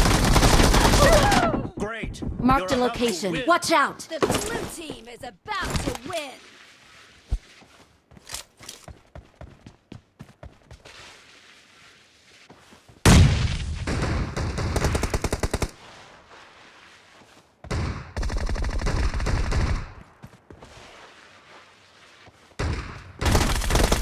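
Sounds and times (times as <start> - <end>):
video game automatic gunfire: 0.0 - 1.4, 13.9 - 15.7, 17.7 - 20.0, 22.6 - 24.0.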